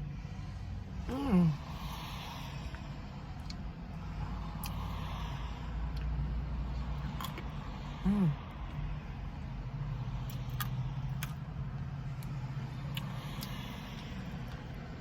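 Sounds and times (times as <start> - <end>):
person humming mm: 1.1 - 1.8, 8.0 - 8.4.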